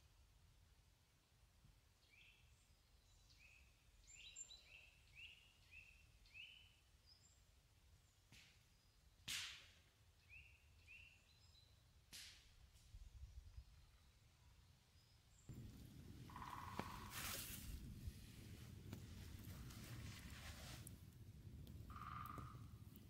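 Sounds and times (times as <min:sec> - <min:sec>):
sharp snap: 0:09.2 - 0:09.8, 0:12.1 - 0:12.5
small bird chirping: 0:14.9 - 0:18.0, 0:21.8 - 0:23.0.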